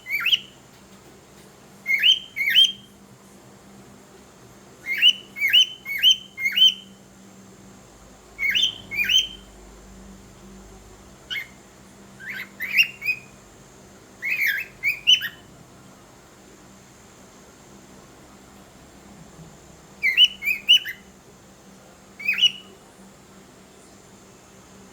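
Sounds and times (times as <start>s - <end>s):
cockatiel chirping whistle calls: 0.1s - 0.5s, 1.9s - 2.9s, 4.8s - 6.9s, 8.4s - 9.5s, 12.2s - 13.3s, 14.2s - 15.4s, 20.0s - 21.0s, 22.2s - 22.7s.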